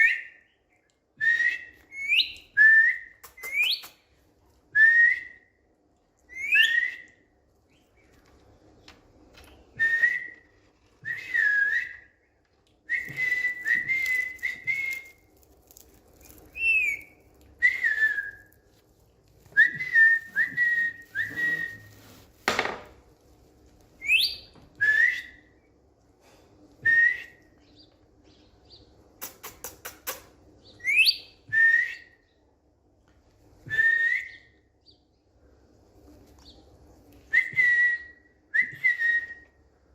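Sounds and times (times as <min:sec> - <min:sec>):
bird clicks: 0:03.2 - 0:04.0.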